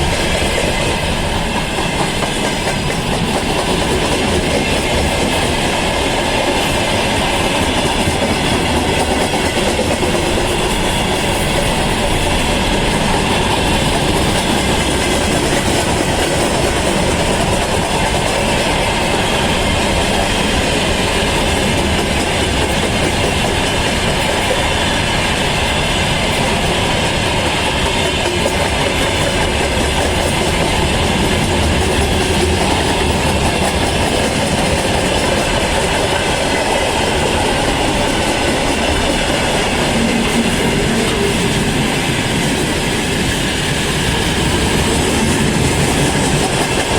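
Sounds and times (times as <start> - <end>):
freight train wheels rumbling: 0.0 - 46.9.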